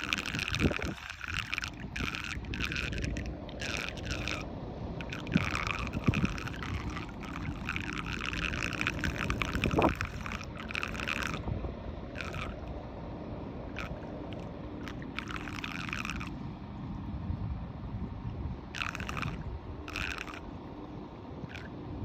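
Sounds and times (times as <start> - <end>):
water gurgling in a drain: 0.0 - 11.5, 12.2 - 12.7.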